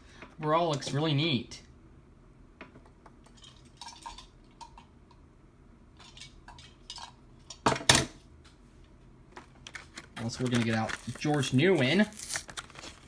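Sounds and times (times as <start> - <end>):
packaging handling noise: 9.3 - 13.0.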